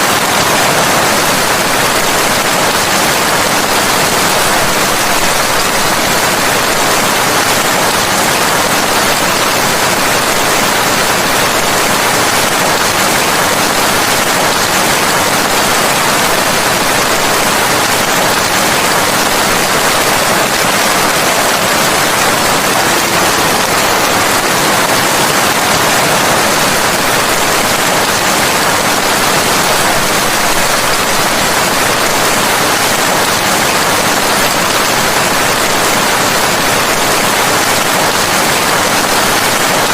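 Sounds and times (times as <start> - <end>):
loud steady rain: 0.0 - 39.9.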